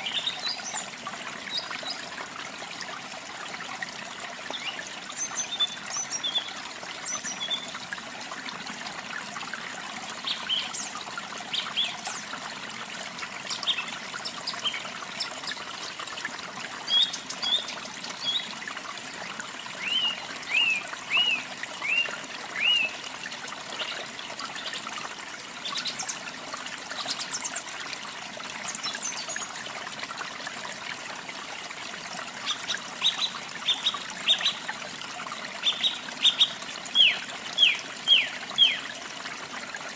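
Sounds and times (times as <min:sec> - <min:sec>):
trickle of running water: 0:00.0 - 0:39.9
small birds chirping: 0:16.8 - 0:18.5, 0:35.6 - 0:38.9.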